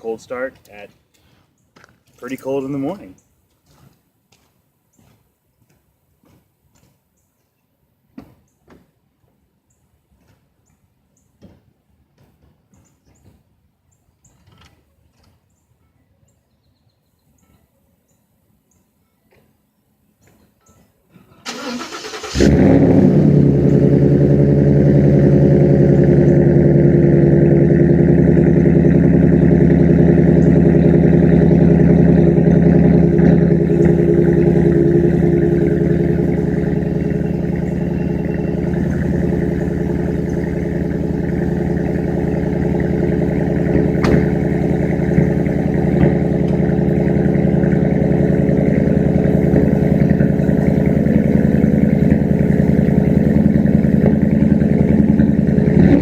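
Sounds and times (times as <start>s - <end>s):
starter motor cranking: 21.5s - 23.1s
car engine idling: 21.5s - 56.0s.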